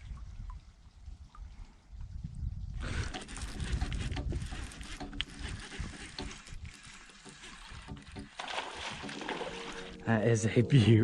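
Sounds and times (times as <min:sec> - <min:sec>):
gear knocks and clicks: 0:02.8 - 0:09.5
water sloshing against kayak hull: 0:02.9 - 0:10.1.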